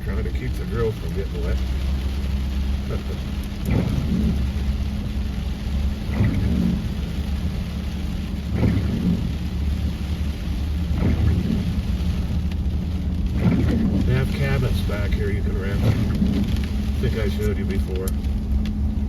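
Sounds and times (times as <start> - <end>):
low cabin rumble: 0.0 - 19.0
rain on car: 0.0 - 19.0
windshield wipers squeaking: 2.7 - 7.2, 8.3 - 9.4, 10.8 - 12.2, 13.3 - 18.6.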